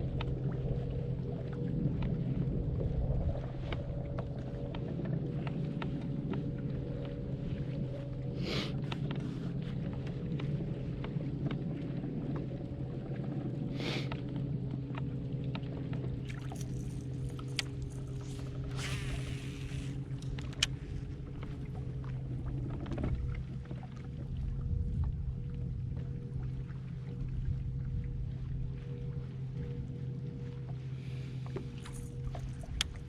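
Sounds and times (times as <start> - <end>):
boat motor humming: 0.0 - 33.0
light clicks: 14.9 - 21.6.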